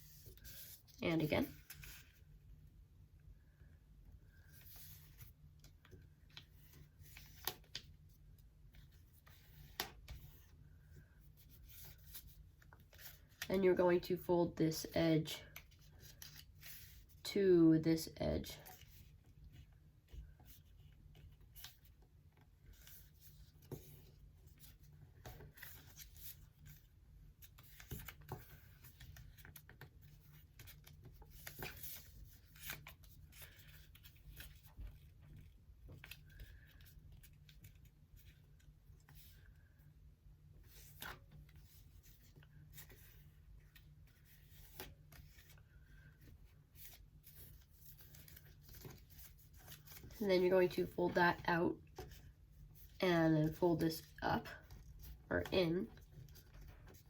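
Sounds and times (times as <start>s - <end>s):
paper rustling and crinkling: 18.6s - 39.7s, 40.5s - 50.9s
paper crackles: 40.6s - 51.0s.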